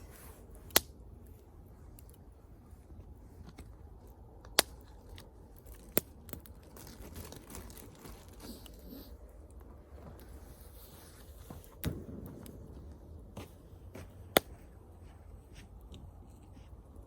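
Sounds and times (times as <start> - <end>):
wood fire crackling: 0.0 - 17.0
sharp pops from fire: 0.5 - 1.0, 11.4 - 14.7.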